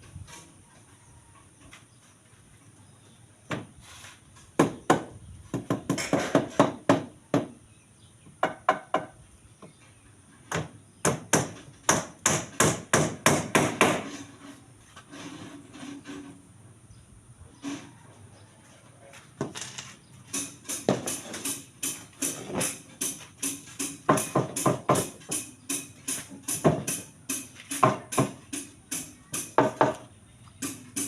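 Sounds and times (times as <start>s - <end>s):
hammer strikes: 10.5s - 14.1s, 20.3s - 30.0s, 30.6s - 31.0s.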